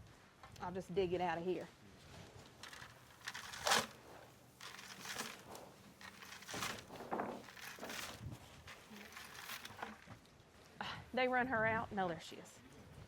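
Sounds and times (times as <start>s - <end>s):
grain feed rustling and crunching: 2.6s - 10.1s.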